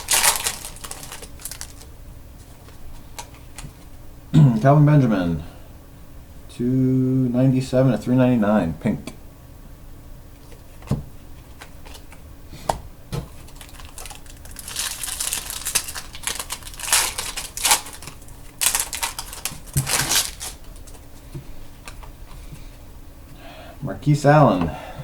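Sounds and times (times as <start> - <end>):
cards sliding and rustling: 0.0 - 3.7, 13.3 - 21.0.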